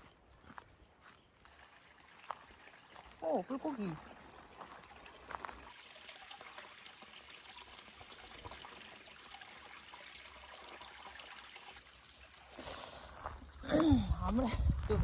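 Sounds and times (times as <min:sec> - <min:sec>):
water trickling: 0:01.4 - 0:15.0.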